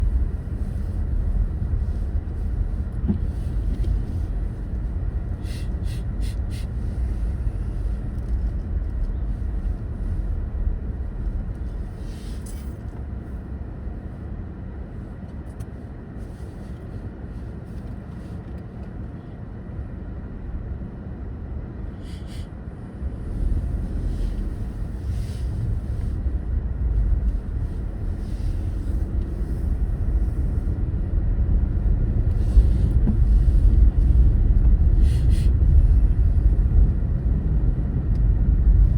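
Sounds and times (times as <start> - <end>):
car engine and tyre rumble: 0.0 - 38.9.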